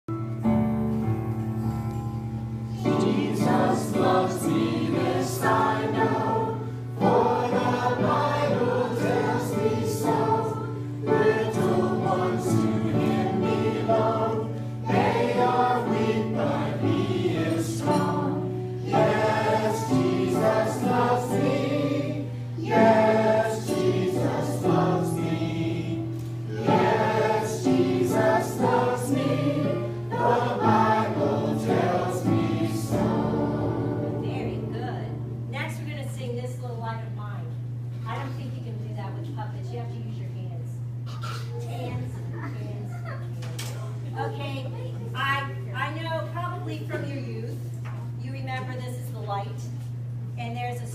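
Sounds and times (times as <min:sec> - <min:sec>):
steady low hum: 0:01.6 - 0:50.9
choir singing gospel song: 0:02.7 - 0:34.8.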